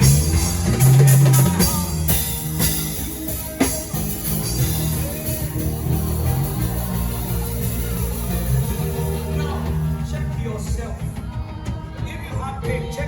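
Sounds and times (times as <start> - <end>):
sustained bass notes: 0.0 - 11.2
live band playing: 0.0 - 13.0.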